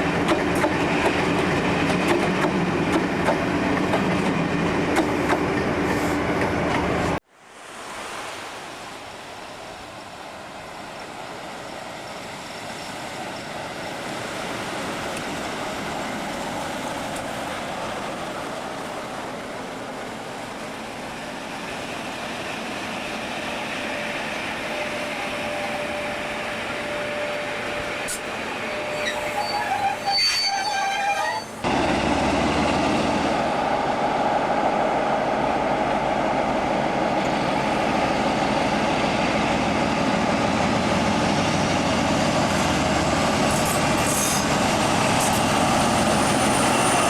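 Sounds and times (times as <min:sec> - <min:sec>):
train running past: 0:00.0 - 0:07.2, 0:09.2 - 0:47.0
high squealing tones: 0:28.6 - 0:31.6.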